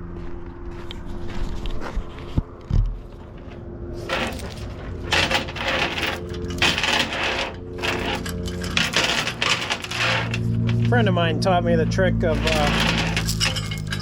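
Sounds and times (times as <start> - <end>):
steel chain rattling and clinking: 4.1 - 11.0, 12.3 - 14.0.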